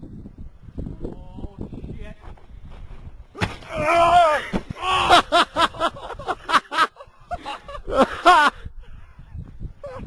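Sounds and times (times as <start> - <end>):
person yelling: 3.7 - 5.2
person laughing rapidly: 4.9 - 8.7.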